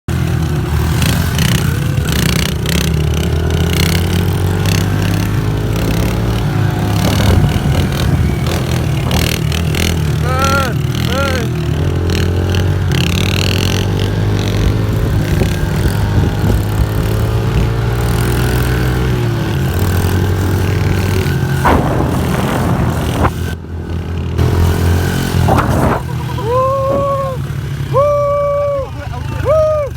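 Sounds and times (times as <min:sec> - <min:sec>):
motorbike engine revving: 0:00.1 - 0:29.9
person calling out: 0:10.2 - 0:11.6, 0:26.3 - 0:29.9
bursts of rushing noise: 0:21.1 - 0:27.5.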